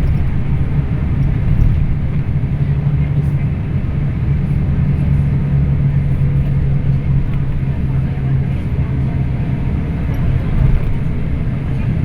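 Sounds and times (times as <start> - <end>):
bus engine droning: 0.0 - 12.0
road rumble: 0.0 - 12.0.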